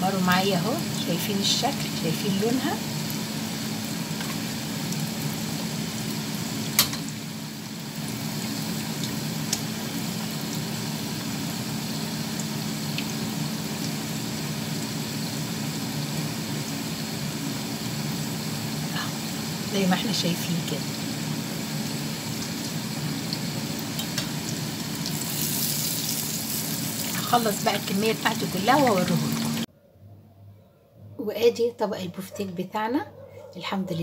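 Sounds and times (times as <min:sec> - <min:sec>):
meat sizzling in hot oil: 0:00.0 - 0:29.7.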